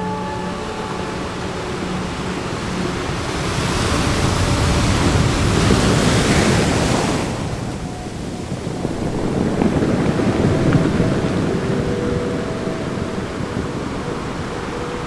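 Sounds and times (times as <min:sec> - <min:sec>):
ocean wave rushing in: 0:00.9 - 0:15.0
faint steady tone: 0:06.5 - 0:15.0.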